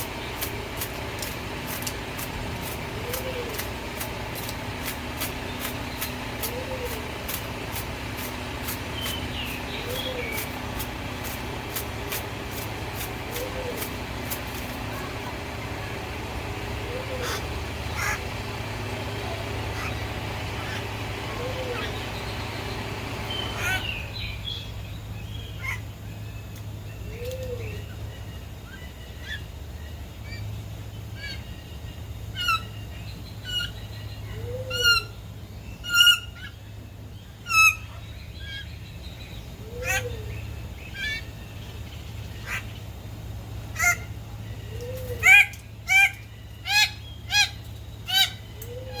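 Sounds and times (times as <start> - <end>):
steady low hum: 0.0 - 49.0
bird honking calls: 16.7 - 18.5, 19.1 - 24.2, 35.8 - 36.6, 37.4 - 38.8, 39.6 - 41.4, 42.3 - 42.8, 43.7 - 49.0.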